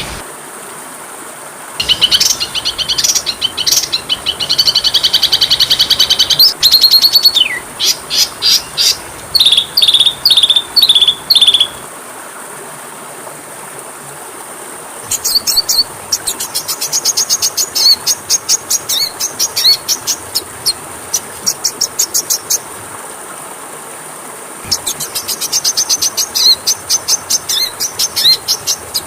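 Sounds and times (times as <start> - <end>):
faint high hiss: 0.0 - 29.0
bird singing: 1.8 - 11.8, 24.7 - 29.0.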